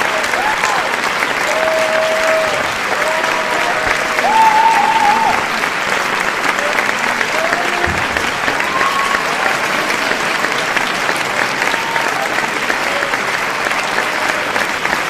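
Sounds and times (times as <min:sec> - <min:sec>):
audience clapping: 0:00.0 - 0:15.0
faint shouts and whoops: 0:01.5 - 0:05.5.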